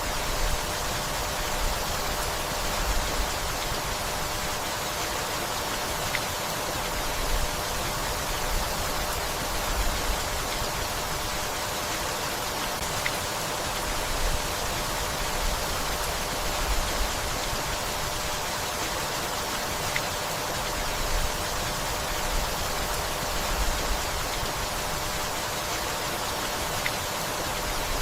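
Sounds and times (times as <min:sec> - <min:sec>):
steady rainfall: 0:00.0 - 0:28.0
faint water drips: 0:01.7 - 0:27.8.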